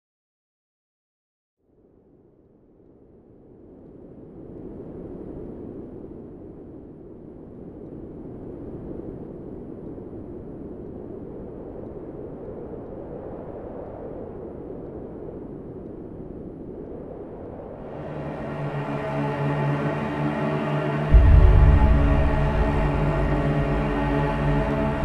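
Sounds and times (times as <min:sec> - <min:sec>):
low rumbling noise: 0:17.6 - 0:25.0.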